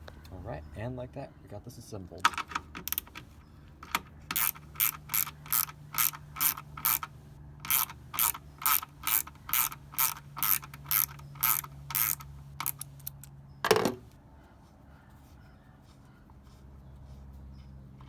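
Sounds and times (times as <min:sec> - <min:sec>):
socket ratchet clicking: 0:02.2 - 0:14.1.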